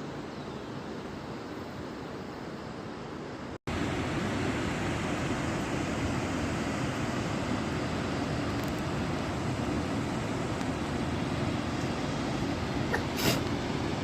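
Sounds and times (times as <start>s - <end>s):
fast-flowing water roaring: 3.7s - 14.0s.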